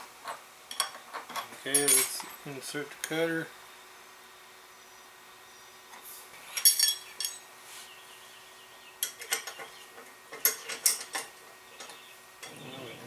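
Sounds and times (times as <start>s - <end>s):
metal wrenches clinking: 0.7s - 2.2s, 6.6s - 7.4s, 10.4s - 11.3s.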